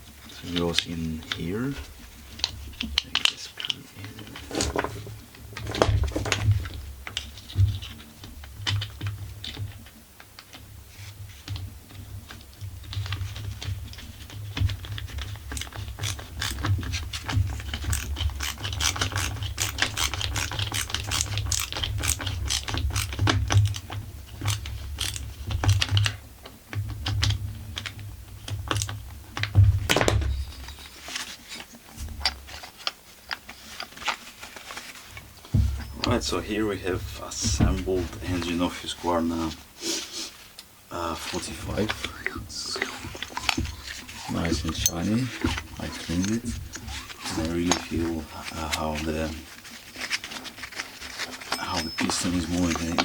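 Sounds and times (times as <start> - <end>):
screwdriver clicking and rattling: 14.8 - 26.1, 42.8 - 47.2
low handling rumble: 35.6 - 39.5.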